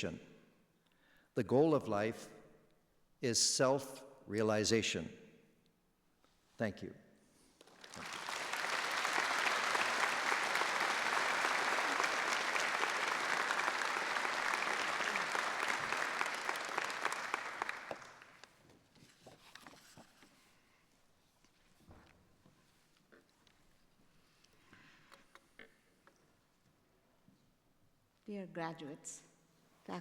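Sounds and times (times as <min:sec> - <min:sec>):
audience applauding: 0:07.6 - 0:18.5.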